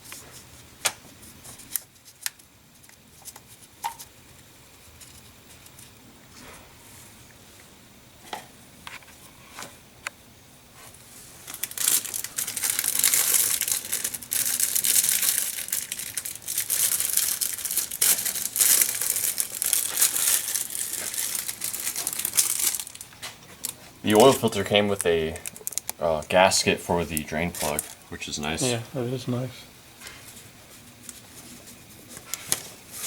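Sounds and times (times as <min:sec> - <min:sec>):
plastic packaging crinkling: 0:11.4 - 0:26.0, 0:26.9 - 0:28.1.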